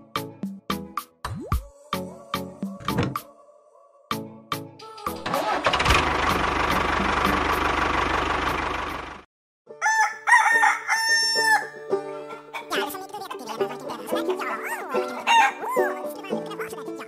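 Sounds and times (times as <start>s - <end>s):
motor rumbling: 5.2s - 9.3s
rooster crowing and clucking: 9.7s - 12.0s, 14.6s - 15.9s.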